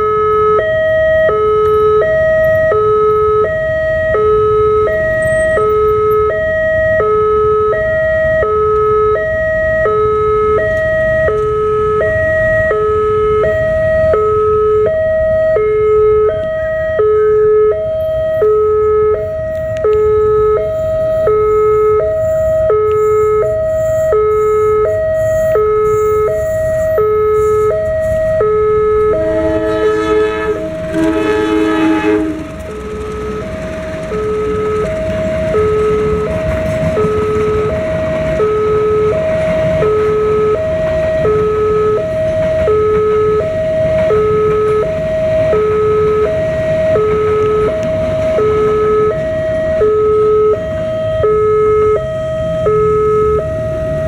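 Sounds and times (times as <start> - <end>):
two-tone crossing warning alarm: 0.0 - 54.0
locomotive horn: 18.5 - 52.1.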